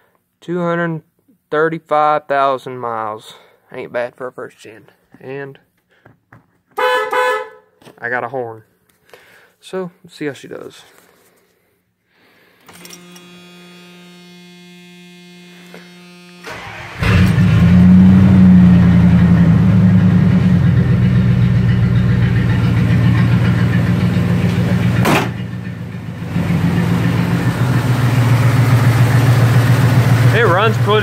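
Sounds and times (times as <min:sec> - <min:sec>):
truck engine starting and idling: 0:16.4 - 0:31.0
sharp thump: 0:24.4 - 0:25.6.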